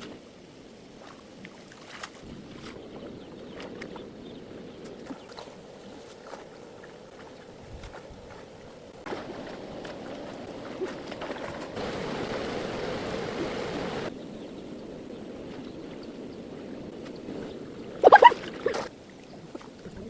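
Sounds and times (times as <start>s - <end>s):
running water: 5.0s - 14.1s, 16.5s - 20.0s.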